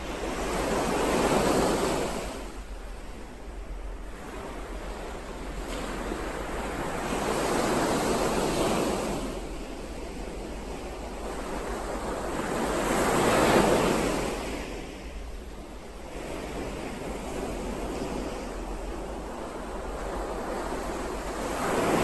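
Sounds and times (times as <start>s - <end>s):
ocean waves: 0.0s - 22.0s.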